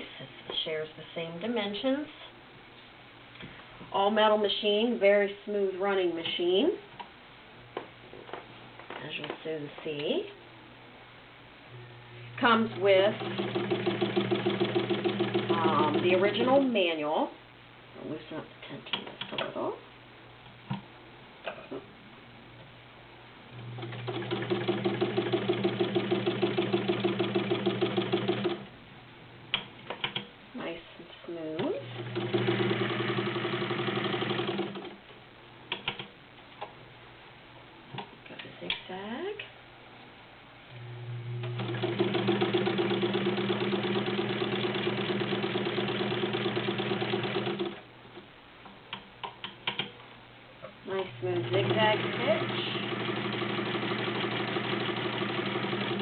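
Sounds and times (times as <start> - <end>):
sewing machine stitching: 12.5 - 16.3, 23.8 - 28.7, 31.8 - 35.0, 41.4 - 47.8, 51.2 - 56.0.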